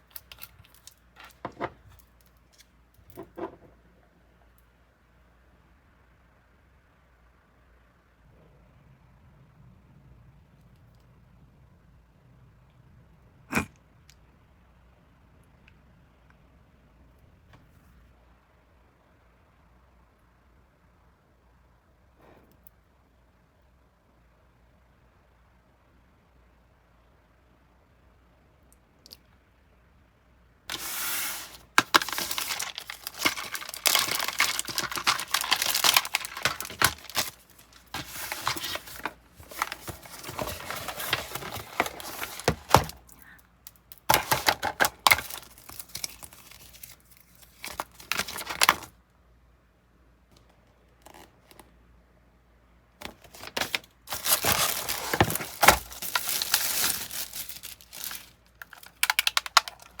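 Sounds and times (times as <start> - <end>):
packaging torn and crinkled: 0.0 - 2.7, 30.7 - 48.9, 53.0 - 60.0.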